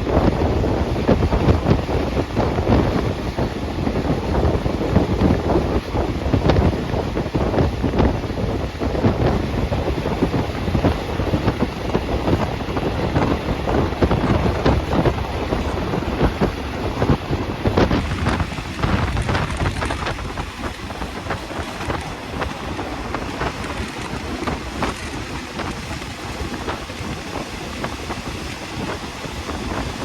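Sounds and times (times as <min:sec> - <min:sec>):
train rumble and rattling: 0:00.0 - 0:30.0
wind buffeting microphone: 0:00.0 - 0:30.0.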